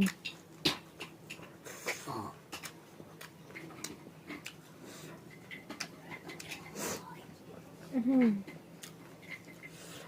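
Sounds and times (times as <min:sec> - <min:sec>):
person chewing food: 0:00.0 - 0:07.2, 0:08.2 - 0:10.0.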